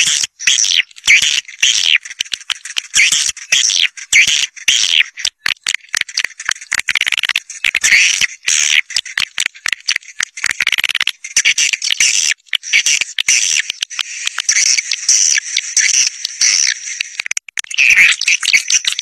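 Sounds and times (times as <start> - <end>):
swiftlets chirping and twittering: 0.0 - 10.5.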